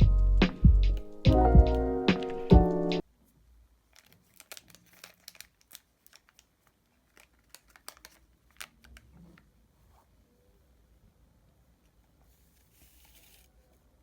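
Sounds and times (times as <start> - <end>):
crinkling and light clicks: 3.9 - 9.5.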